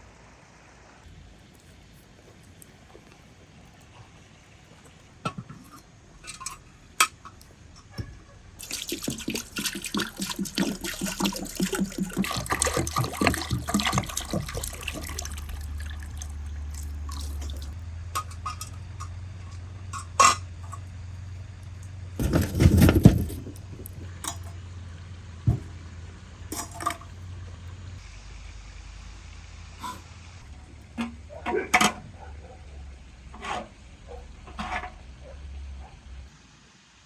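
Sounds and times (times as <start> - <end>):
liquid splashing and dripping: 8.6 - 17.8
knocks: 25.5 - 25.8.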